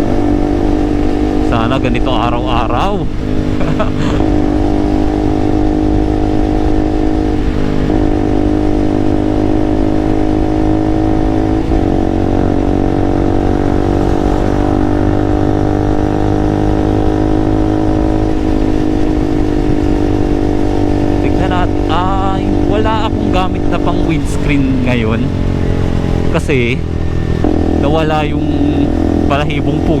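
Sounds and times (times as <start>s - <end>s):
motorcycle engine cruising: 0.0s - 30.0s
wind rumble: 10.9s - 27.9s.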